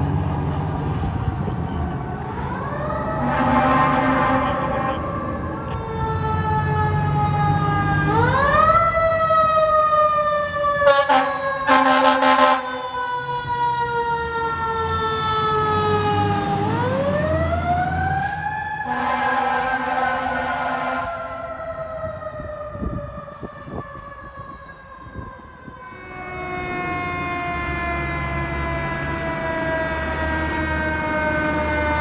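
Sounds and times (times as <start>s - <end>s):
fire truck siren wailing: 0.0s - 32.0s
truck engine rumble: 0.0s - 32.0s
short horn blasts: 3.2s - 5.0s, 10.9s - 12.8s, 18.9s - 21.1s.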